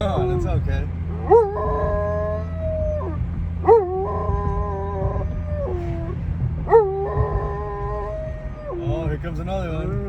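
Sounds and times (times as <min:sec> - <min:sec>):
steady low hum: 0:00.0 - 0:10.0
dog howling: 0:01.1 - 0:08.9.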